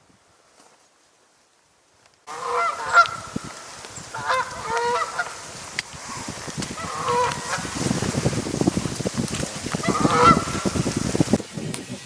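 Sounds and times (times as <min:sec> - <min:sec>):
geese honking: 0:02.3 - 0:08.1, 0:09.6 - 0:11.0.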